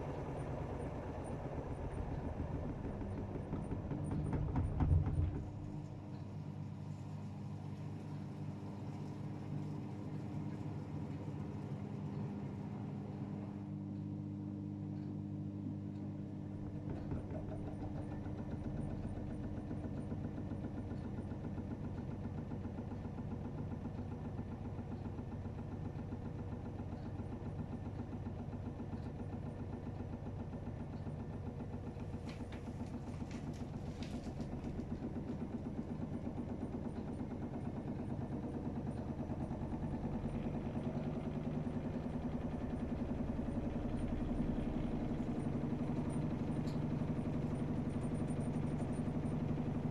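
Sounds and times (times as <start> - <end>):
washing machine churning: 0.0 - 49.9.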